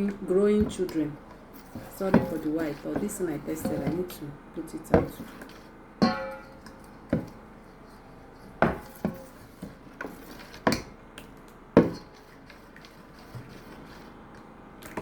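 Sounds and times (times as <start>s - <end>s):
utensils knocking against a bowl: 0.0s - 4.2s, 4.8s - 7.4s, 8.6s - 10.9s, 11.8s - 12.3s.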